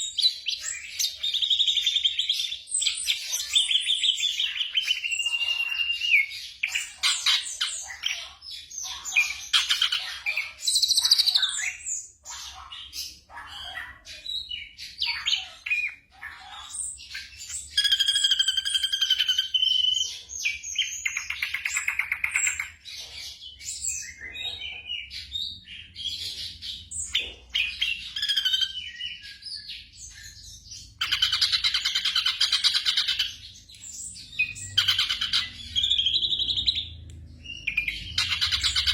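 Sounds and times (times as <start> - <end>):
bird singing whistles and trills: 0.0 - 8.2, 17.1 - 22.8, 27.0 - 38.9.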